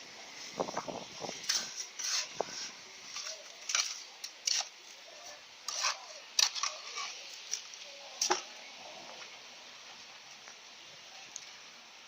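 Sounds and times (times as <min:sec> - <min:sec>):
scraping on masonry wall: 0:01.2 - 0:07.2.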